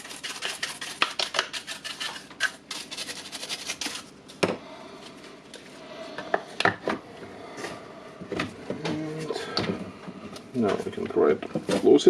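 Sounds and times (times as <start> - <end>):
brush scrubbing: 0.0 - 4.1.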